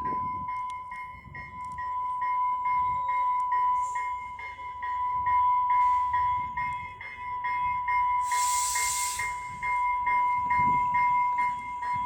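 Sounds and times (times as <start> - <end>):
railroad warning bell ringing: 0.0 - 12.0
train air hiss: 8.2 - 9.8.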